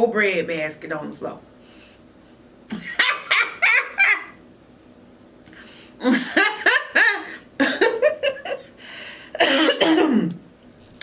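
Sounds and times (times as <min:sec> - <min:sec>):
woman laughing: 0:02.7 - 0:04.4, 0:06.0 - 0:08.8.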